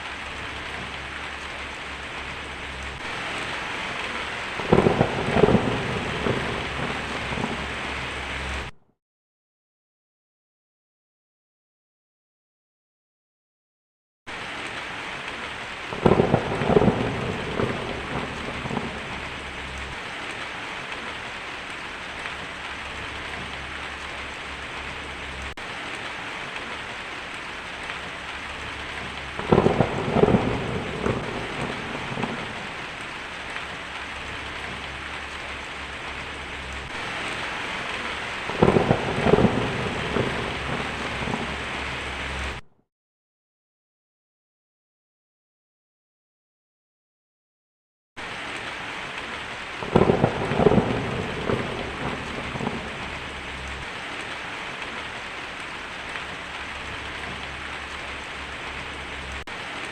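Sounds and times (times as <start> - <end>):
crackling thunder: 0.0 - 8.8, 14.3 - 42.6, 48.2 - 59.9
heavy rain on a tin roof: 0.0 - 8.8, 14.3 - 42.6, 48.2 - 59.9.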